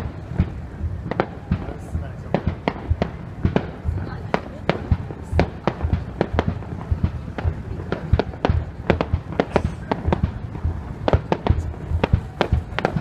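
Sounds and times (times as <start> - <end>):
fireworks bursting: 0.0 - 13.0
low rumble: 0.0 - 13.0.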